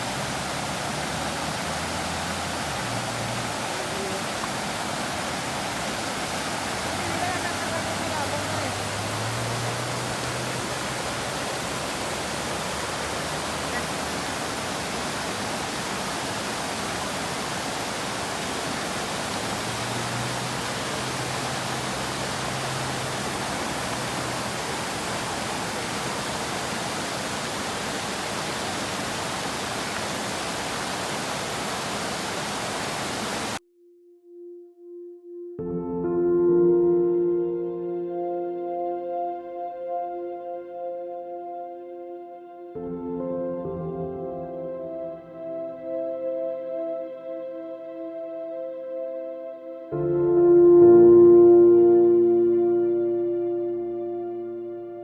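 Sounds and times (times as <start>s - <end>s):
steady rushing noise: 0.0s - 33.6s
soft held musical tone: 33.8s - 55.0s.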